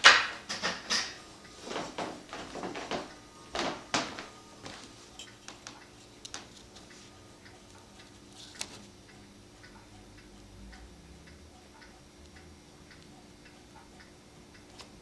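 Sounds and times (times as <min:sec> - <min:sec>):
mechanical clock ticking: 0:02.2 - 0:15.0.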